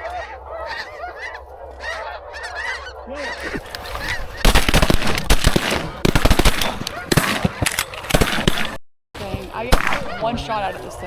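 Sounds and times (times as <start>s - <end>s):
geese honking: 0.0s - 11.0s
shotgun blasts: 4.4s - 10.7s.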